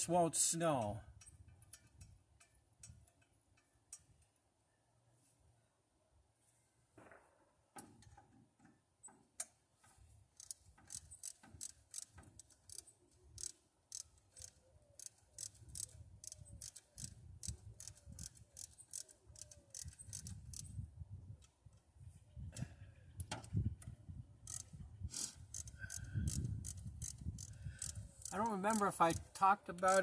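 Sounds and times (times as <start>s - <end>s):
socket ratchet clicking: 10.4s - 20.8s, 24.4s - 30.0s.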